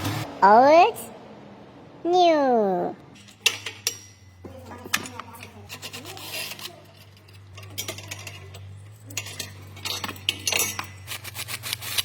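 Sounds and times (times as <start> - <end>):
metal tools clinking: 3.1 - 12.0.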